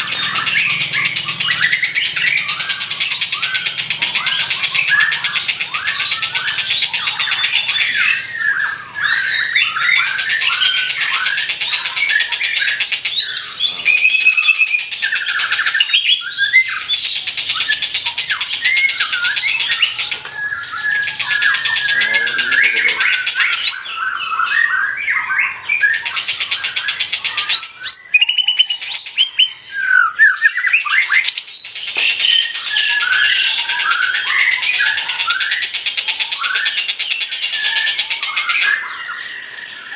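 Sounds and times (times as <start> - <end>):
songbird whistles and squawks: 0.0 - 39.9.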